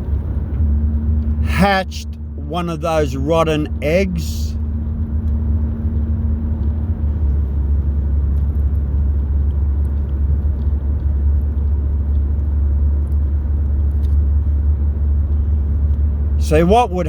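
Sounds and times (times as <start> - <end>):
faint hum: 1.3 - 4.6.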